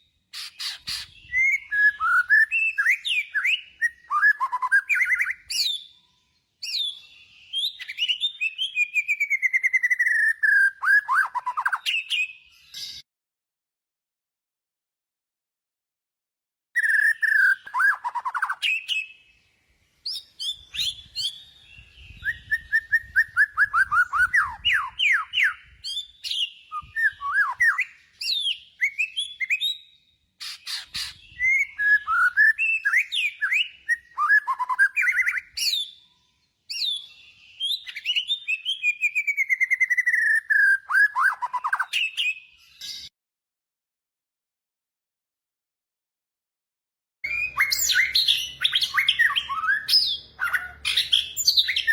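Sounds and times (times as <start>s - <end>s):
bird song with chirps and trills: 0.0s - 13.1s, 16.8s - 43.2s, 47.2s - 51.9s.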